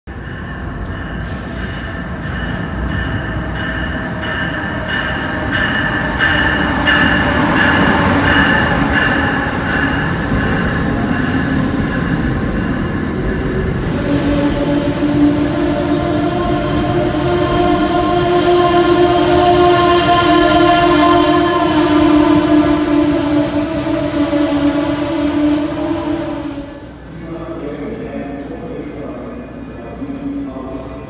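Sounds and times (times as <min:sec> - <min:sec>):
train rail rumble: 0:00.1 - 0:31.0
low train squeal: 0:13.4 - 0:26.9.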